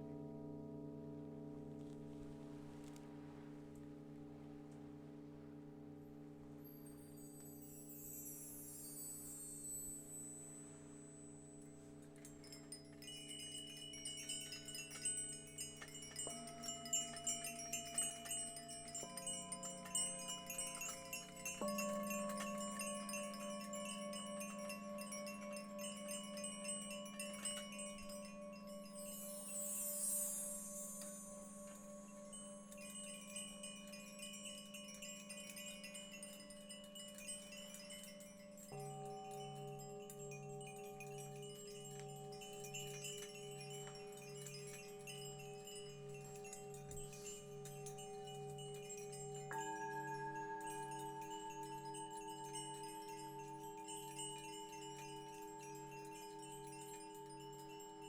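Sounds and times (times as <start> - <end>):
high chime strikes tinkling: 6.6 - 58.0
singing bowls ringing: 6.6 - 58.0.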